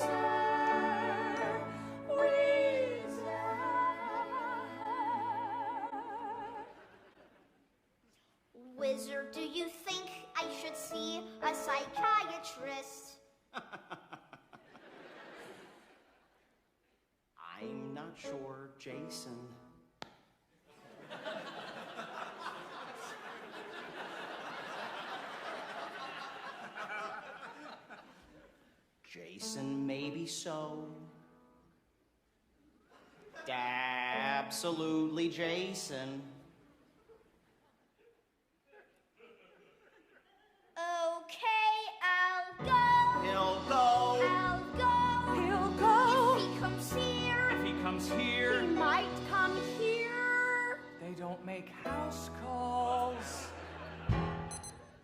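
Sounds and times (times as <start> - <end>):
voices singing a held chord: 0.0 - 6.8
musical theatre accompaniment: 0.0 - 7.6, 8.7 - 16.5, 32.6 - 37.8, 42.3 - 55.0
audience laughing: 6.6 - 7.6, 13.6 - 16.4, 20.7 - 28.7, 36.8 - 40.7, 53.0 - 54.5.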